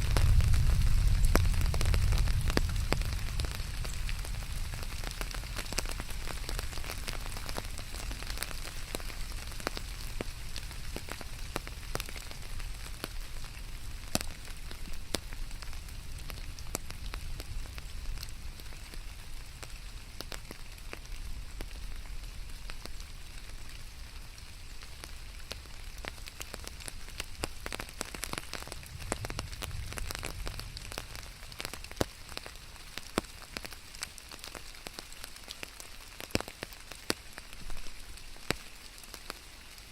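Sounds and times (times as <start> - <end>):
low rumble: 0.0 - 6.2, 28.8 - 31.6
steady rain falling: 0.0 - 39.9.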